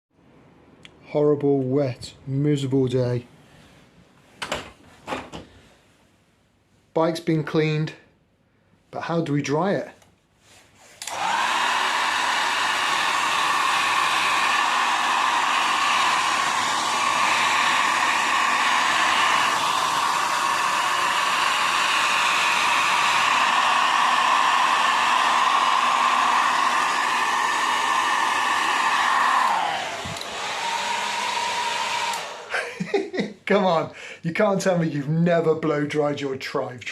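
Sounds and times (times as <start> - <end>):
hair dryer whining: 11.0 - 33.3.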